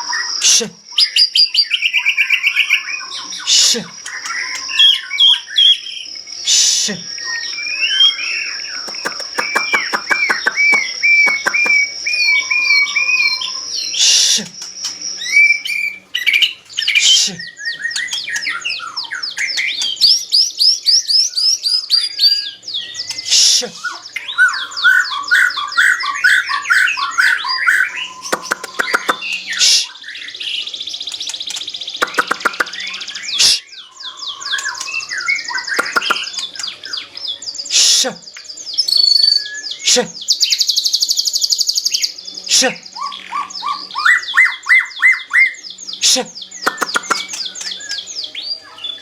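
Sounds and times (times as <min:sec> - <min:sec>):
rapid bird trill: 0:00.0 - 0:49.0
songbird singing: 0:00.0 - 0:49.0
bird sharp clicks: 0:08.8 - 0:11.9, 0:28.3 - 0:29.4, 0:31.1 - 0:32.8, 0:35.8 - 0:36.6, 0:46.6 - 0:48.0.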